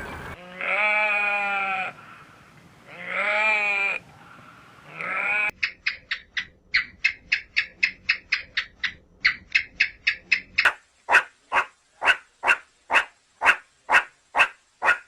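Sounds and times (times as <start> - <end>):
farm animal bleating: 0.4 - 2.0, 2.9 - 4.0, 4.8 - 5.6.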